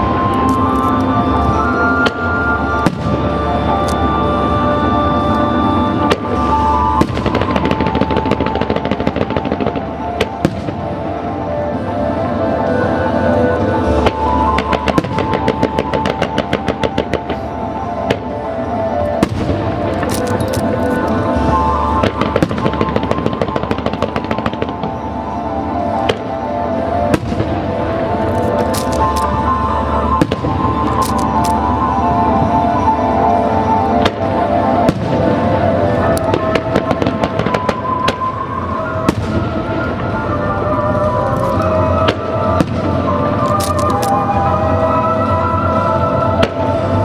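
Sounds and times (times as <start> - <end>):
show music: 0.0 - 47.0
fireworks crackling and popping: 6.0 - 11.9, 13.9 - 32.0, 33.6 - 44.6.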